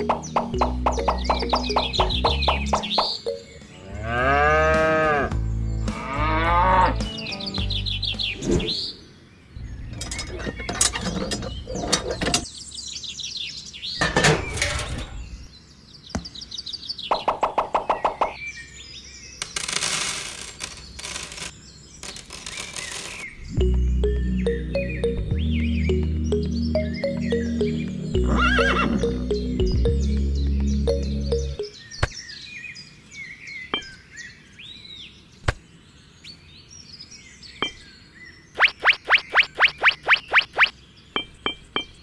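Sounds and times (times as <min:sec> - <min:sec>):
background music: 0:00.0 - 0:08.6, 0:23.6 - 0:31.8.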